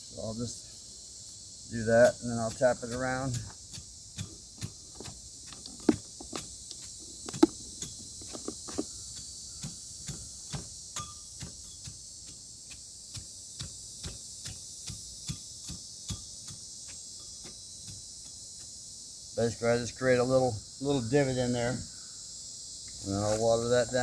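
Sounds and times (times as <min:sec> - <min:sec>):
insects chorus: 0:00.0 - 0:24.0
tapping knocks around a pole: 0:02.1 - 0:09.0.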